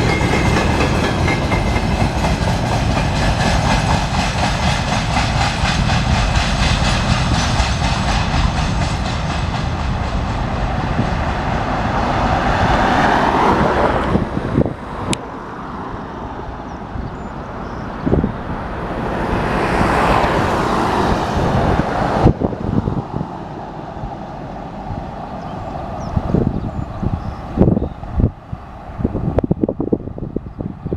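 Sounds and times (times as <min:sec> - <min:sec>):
freight train wagons rolling: 0:00.0 - 0:15.2.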